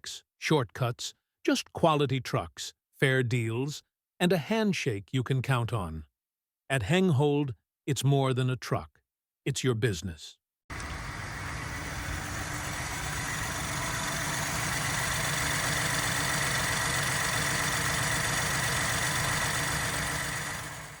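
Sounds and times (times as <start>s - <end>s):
van engine idling: 10.7s - 21.0s.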